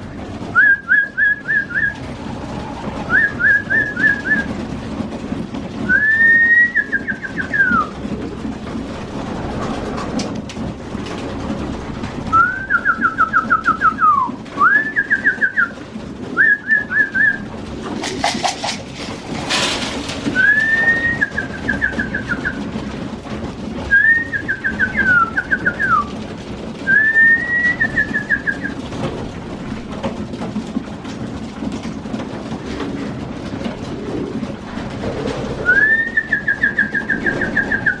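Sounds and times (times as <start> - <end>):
pigeons cooing: 0.0 - 38.0
trilled whistles: 0.5 - 4.6, 5.8 - 7.9, 12.3 - 15.8, 16.4 - 17.5, 20.3 - 22.6, 23.9 - 26.1, 26.8 - 28.8, 35.6 - 38.0.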